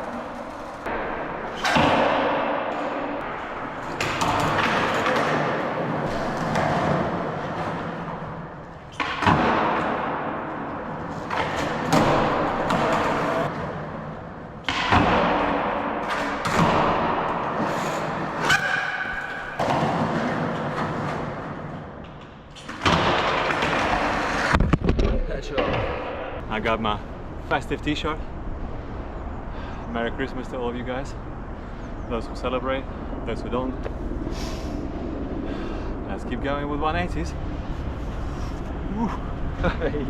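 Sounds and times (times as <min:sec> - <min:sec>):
skateboard wheels rolling on concrete: 0:00.0 - 0:29.1.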